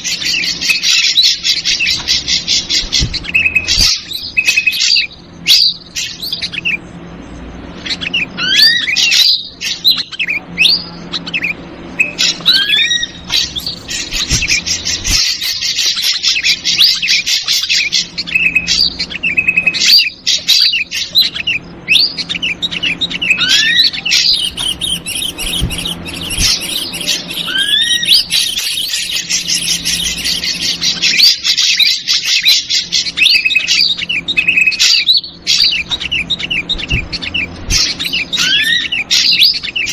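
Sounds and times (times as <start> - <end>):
rapid bird chattering: 0.0 - 6.9, 7.6 - 39.9
rising whistled bird notes: 21.9 - 31.0.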